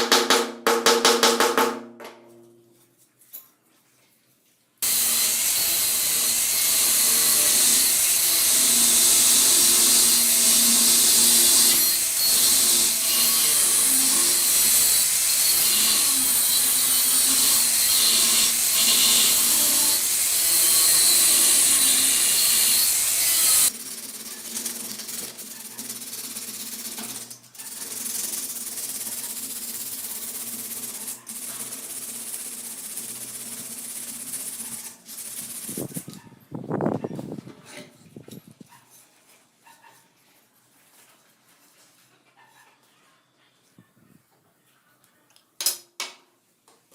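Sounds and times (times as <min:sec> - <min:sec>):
power tool working on axe: 0:04.8 - 0:23.8.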